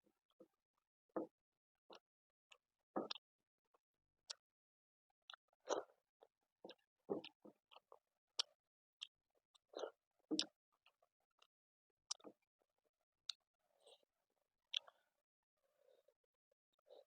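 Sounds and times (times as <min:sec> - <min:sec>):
wet chewing and lip smacks: 0:12.1 - 0:12.4, 0:14.7 - 0:15.0.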